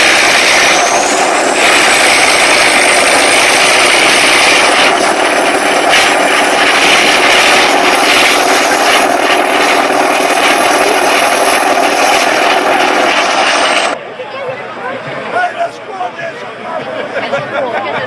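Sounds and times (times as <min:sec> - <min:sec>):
loud engine running under load: 0:00.0 - 0:14.0.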